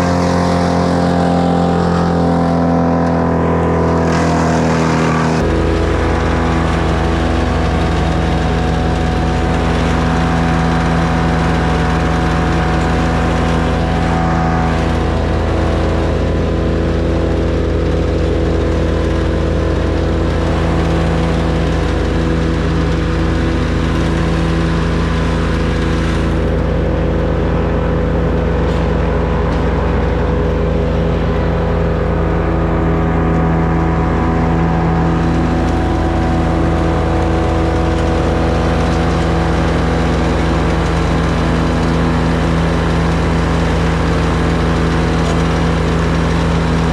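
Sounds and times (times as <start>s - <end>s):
small engine running steadily: 0.0s - 46.9s.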